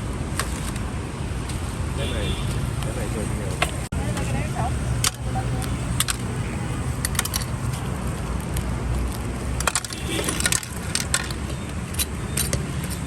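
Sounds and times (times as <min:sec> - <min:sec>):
street traffic rumble: 0:00.0 - 0:13.0
metallic clicks and clinks: 0:07.0 - 0:07.9, 0:09.6 - 0:13.0.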